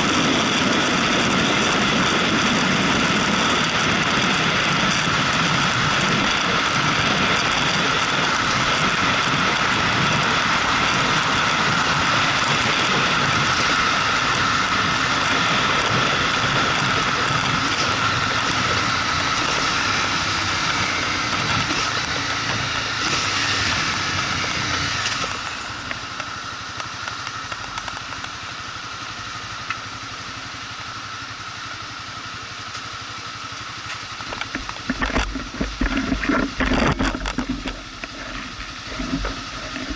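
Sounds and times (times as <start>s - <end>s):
wind noise: 0.0s - 25.8s, 34.2s - 39.9s
motorcycle engine: 0.0s - 39.9s
road noise: 0.0s - 39.9s.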